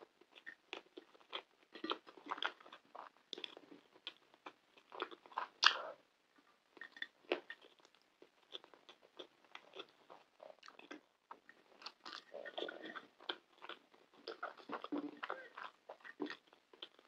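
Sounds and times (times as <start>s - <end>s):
chewing with wet mouth smacks: 6.8s - 17.0s.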